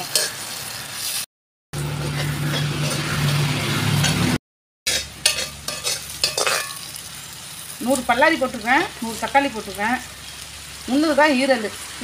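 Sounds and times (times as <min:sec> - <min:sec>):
vegetables sizzling in oil: 0:00.0 - 0:12.0
spatula scraping metal pan: 0:01.8 - 0:06.8.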